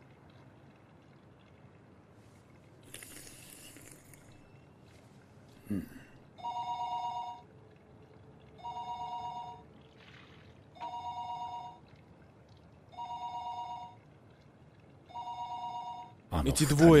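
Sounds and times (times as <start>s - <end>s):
two-tone telephone ringing: 15.2s - 16.2s.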